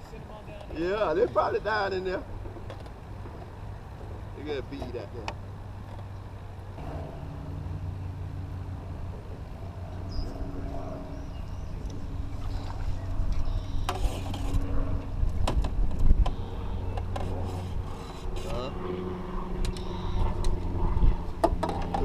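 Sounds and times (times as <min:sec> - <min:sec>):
low rumbles: 0:00.0 - 0:22.0
small boat motor running: 0:05.4 - 0:22.0.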